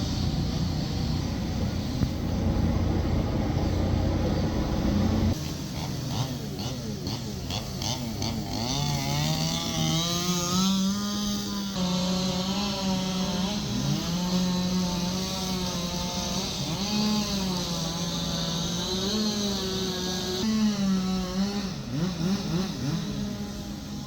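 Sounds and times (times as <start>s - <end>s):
chainsaw cutting wood: 5.0s - 24.0s.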